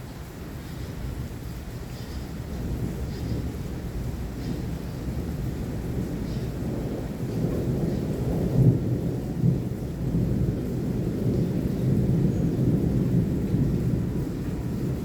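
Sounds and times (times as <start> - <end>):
rain: 0.0 - 15.0
thunder rumbling: 5.2 - 15.0.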